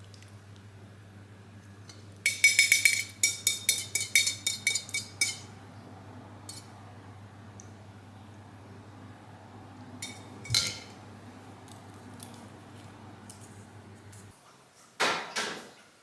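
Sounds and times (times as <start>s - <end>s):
light ringing clinks: 10.0s - 11.0s.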